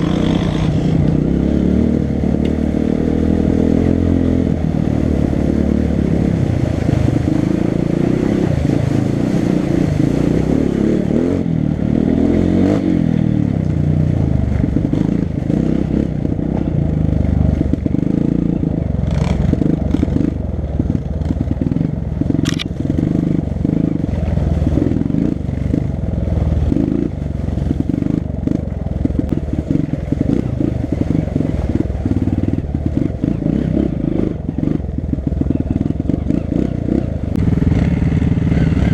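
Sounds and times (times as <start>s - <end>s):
dirt bike engine revving: 0.0s - 13.5s, 14.5s - 38.9s.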